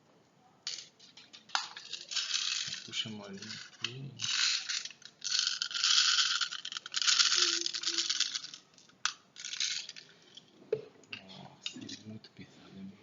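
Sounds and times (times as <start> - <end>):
plastic pellets rattling: 0.7 - 10.1.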